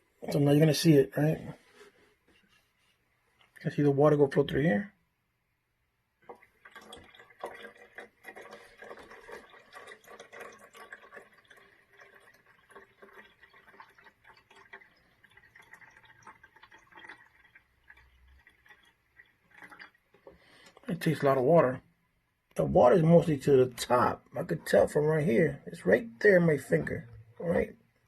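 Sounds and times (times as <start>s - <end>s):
water splashes and drips: 6.2s - 21.7s
water trickling into reservoir: 6.2s - 21.9s.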